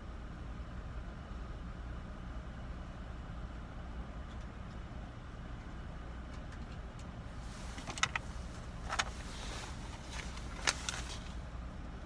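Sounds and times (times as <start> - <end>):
car engine idling: 4.9 - 12.0.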